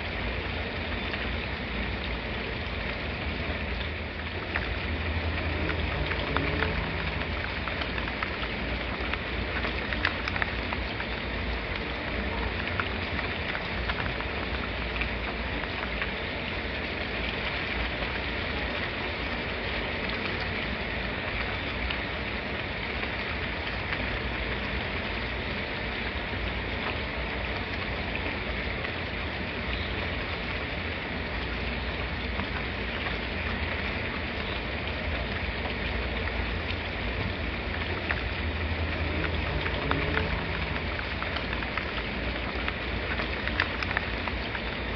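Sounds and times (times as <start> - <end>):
heavy rain hiss: 0.0 - 44.9
raindrops ticking: 0.0 - 44.9.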